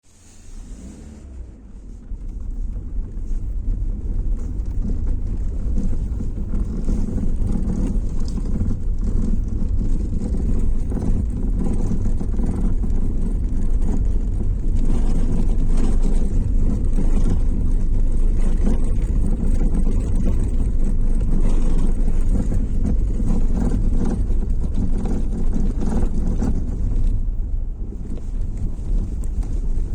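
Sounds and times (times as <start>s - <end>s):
road and tyre rumble: 0.0s - 29.9s.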